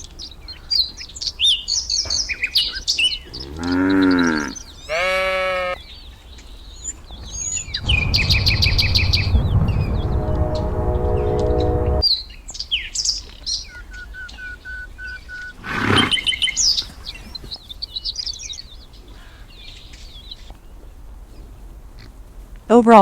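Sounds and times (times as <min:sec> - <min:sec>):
loud noise with steady hum: 0:07.4 - 0:12.0.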